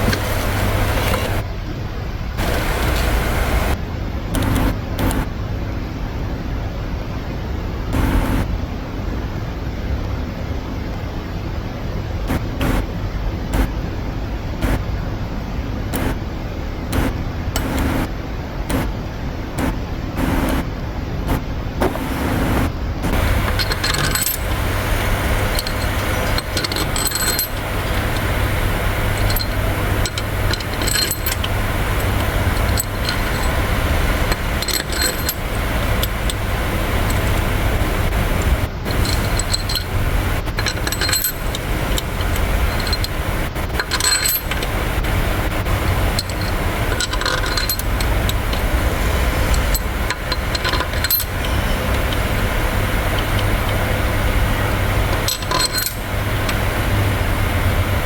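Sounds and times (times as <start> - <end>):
steady low hum: 0.0 - 58.0
metal tools clinking: 23.1 - 53.8, 55.0 - 56.7.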